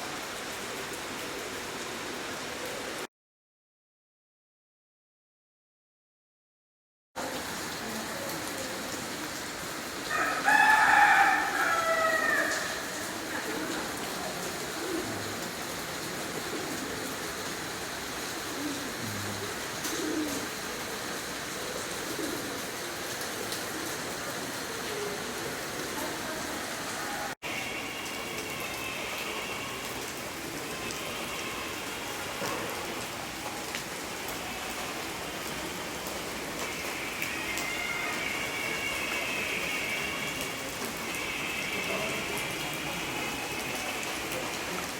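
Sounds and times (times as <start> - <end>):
rooster crowing: 10.1 - 12.9
rain hissing: 11.4 - 44.9.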